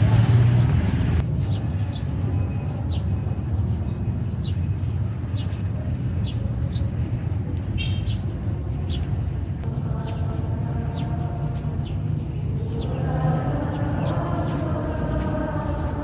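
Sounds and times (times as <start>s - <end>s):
small birds chirping: 0.0s - 16.0s
steady low rumble: 8.3s - 16.0s.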